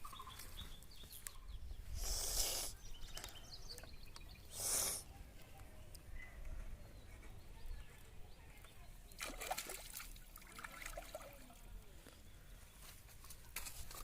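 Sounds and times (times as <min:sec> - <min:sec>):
water trickling and sloshing: 0:09.0 - 0:11.9
small splashes: 0:09.1 - 0:11.7.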